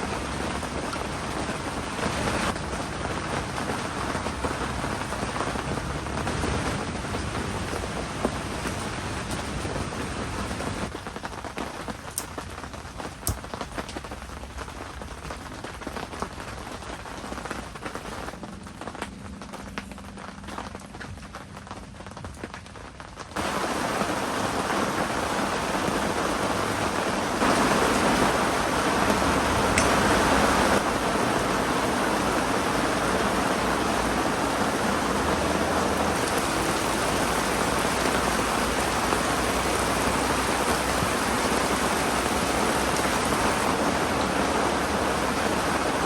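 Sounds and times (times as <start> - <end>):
heavy rain falling: 0.0 - 46.0.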